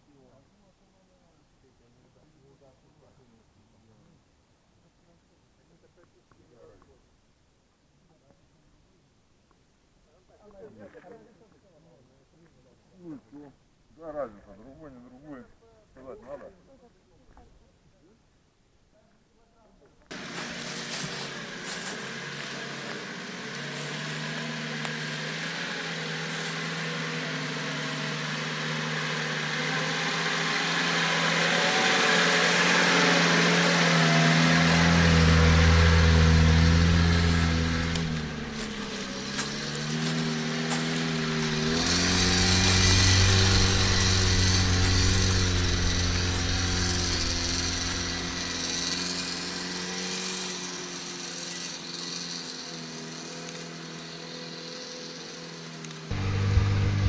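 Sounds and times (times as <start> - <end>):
vehicle engine working under load: 20.1 - 57.0.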